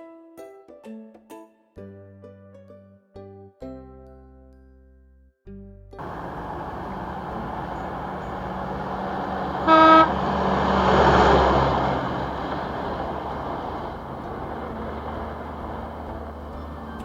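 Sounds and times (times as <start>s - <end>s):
vehicle engine passing by: 6.0s - 17.0s
short horn toot: 9.5s - 10.2s.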